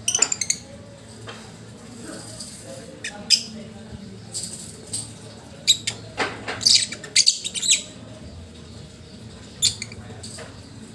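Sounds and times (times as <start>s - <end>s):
lovebird chirping and squeaking: 0.0s - 0.7s, 3.0s - 3.6s, 5.6s - 6.0s, 6.6s - 8.0s, 9.5s - 10.0s.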